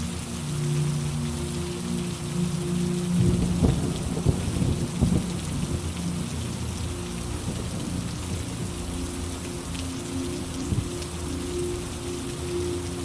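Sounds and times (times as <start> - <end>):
steady rain falling: 0.0 - 13.0
thunder rumbling and cracking: 3.2 - 5.8.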